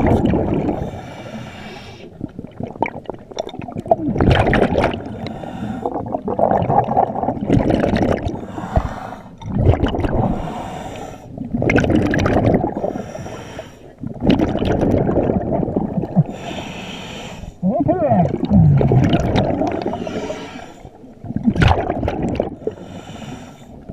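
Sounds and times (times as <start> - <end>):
diver breathing through regulator: 0.6 - 2.2, 4.9 - 6.2, 8.2 - 9.4, 10.1 - 11.4, 12.6 - 14.0, 16.2 - 17.6, 19.7 - 21.1, 22.5 - 23.9.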